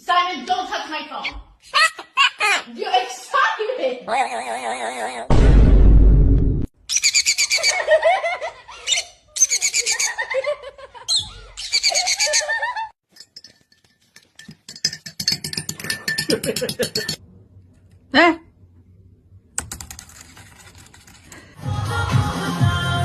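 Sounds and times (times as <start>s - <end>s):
high-pitched laughter: 1.6s - 2.8s, 4.0s - 5.3s, 7.2s - 13.0s
pulsing cackling laughter: 9.8s - 12.9s.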